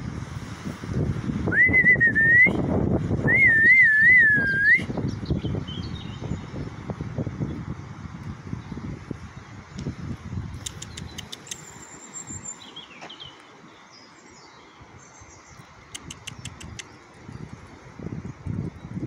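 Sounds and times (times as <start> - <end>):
small birds chirping: 4.9 - 7.8, 8.6 - 17.4.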